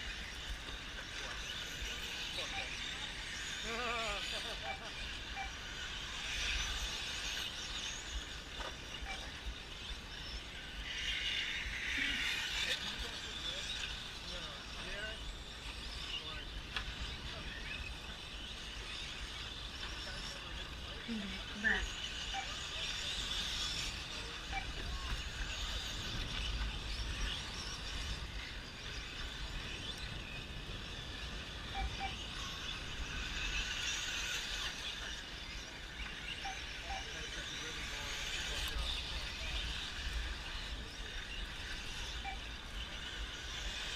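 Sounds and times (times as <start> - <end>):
rc trucks racing: 0.0 - 43.9
wind rumble on microphone: 0.0 - 43.9.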